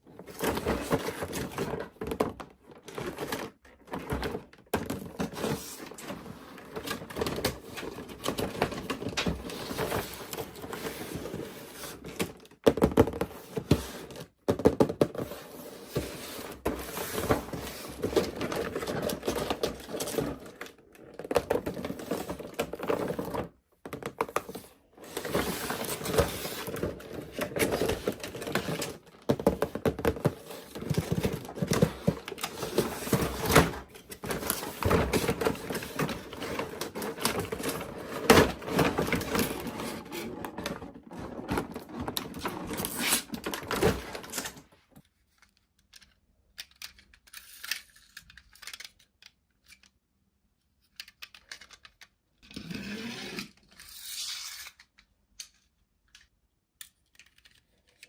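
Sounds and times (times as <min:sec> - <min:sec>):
plastic toys clicking and tapping: 0:45.4 - 0:50.1, 0:50.8 - 0:52.3.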